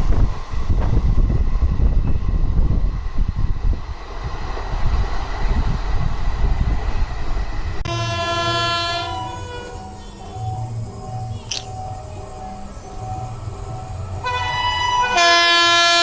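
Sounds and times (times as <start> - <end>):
express train passing: 0.0 - 16.0
held tone of many pitches: 7.8 - 16.0.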